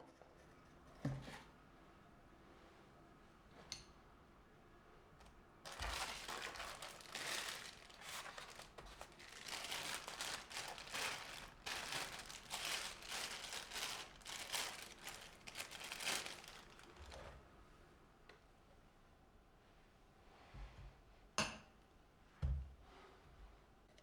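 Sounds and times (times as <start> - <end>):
crinkly material rustling: 5.7 - 17.4.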